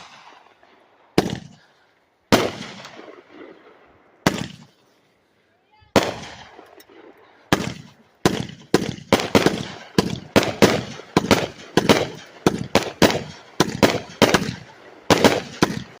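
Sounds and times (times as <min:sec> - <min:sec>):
fireworks firing sharp reports: 0:00.0 - 0:04.8, 0:05.8 - 0:16.0.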